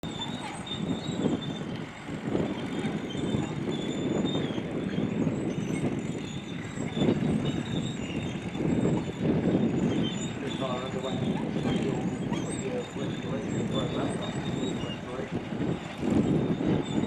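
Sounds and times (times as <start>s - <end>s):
heavy engine rumbling under load: 0.0s - 17.0s
faint high-pitched squeals: 2.5s - 17.0s.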